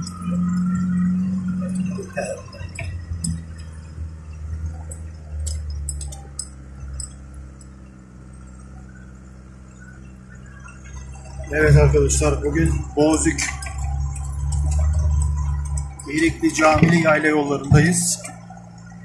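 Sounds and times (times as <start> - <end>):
car engine running under load: 0.0 - 19.0.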